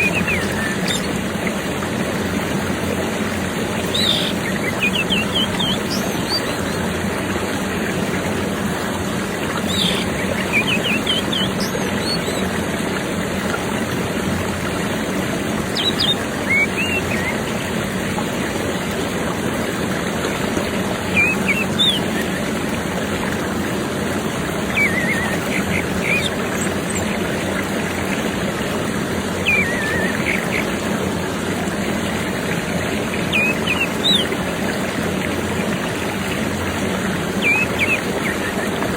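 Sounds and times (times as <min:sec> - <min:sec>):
thrush chirping: 0:09.6 - 0:12.6, 0:29.4 - 0:30.8.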